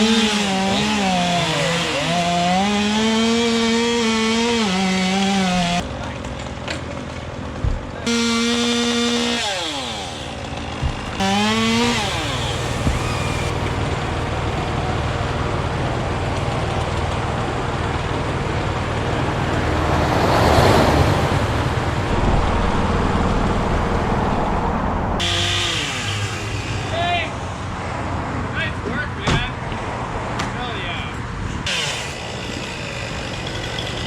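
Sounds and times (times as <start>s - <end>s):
chainsaw revving: 0.0s - 5.8s, 8.0s - 13.6s, 25.2s - 26.9s, 31.7s - 34.0s
busy road traffic: 5.7s - 34.0s
vehicle passing: 20.0s - 25.8s.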